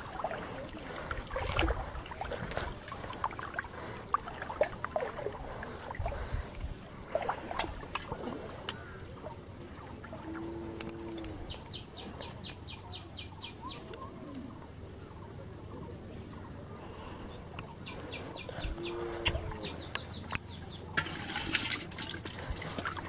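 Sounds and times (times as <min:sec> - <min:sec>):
water splash: 0:00.0 - 0:11.0
bird high clicking calls: 0:17.5 - 0:20.9.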